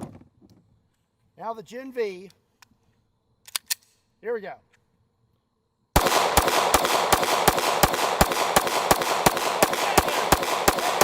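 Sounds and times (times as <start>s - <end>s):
rapid gunshots: 6.0s - 11.0s.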